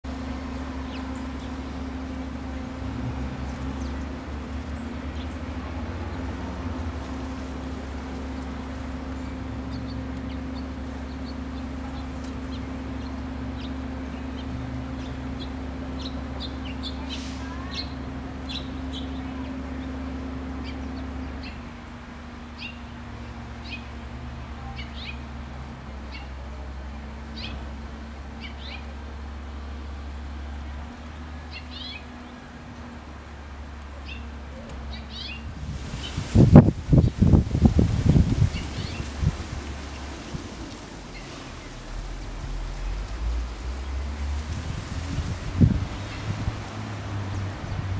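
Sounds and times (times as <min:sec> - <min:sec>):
songbird chips: 0:34.9 - 0:47.7.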